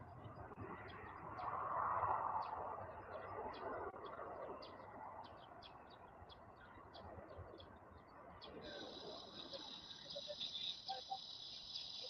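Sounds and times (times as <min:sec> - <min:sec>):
small birds chirping: 0:02.4 - 0:12.0.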